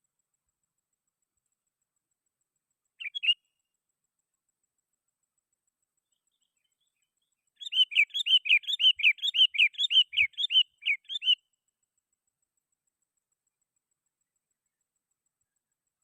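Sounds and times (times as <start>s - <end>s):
bulbul singing rapid notes: 3.0s - 3.4s, 7.6s - 11.4s.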